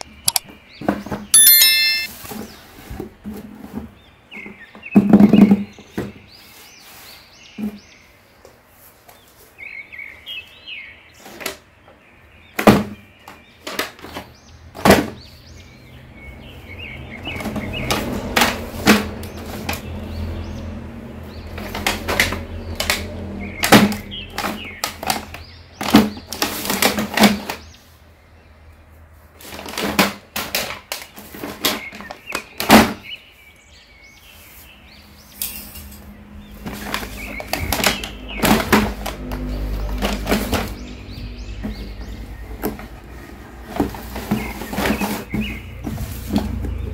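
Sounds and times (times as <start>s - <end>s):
faint high chirps: 1.4s - 2.2s
boxes being handled and set down: 43.6s - 46.8s.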